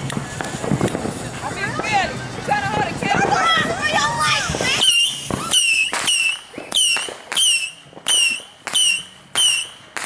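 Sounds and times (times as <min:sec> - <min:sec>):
firework shots cracking: 0:00.0 - 0:10.0
firework whistle: 0:04.2 - 0:10.0.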